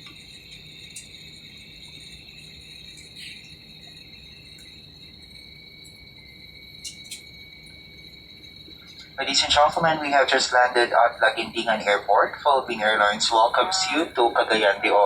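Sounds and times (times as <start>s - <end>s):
high-pitched cabin whine: 0.0s - 15.0s
low hum: 9.2s - 15.0s.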